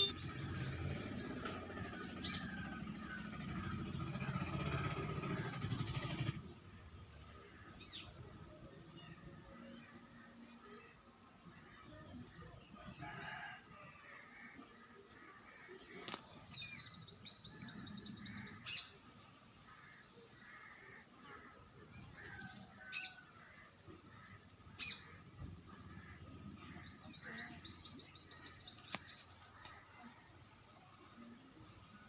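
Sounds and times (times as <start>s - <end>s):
songbird trilling and chirping: 26.0s - 29.5s.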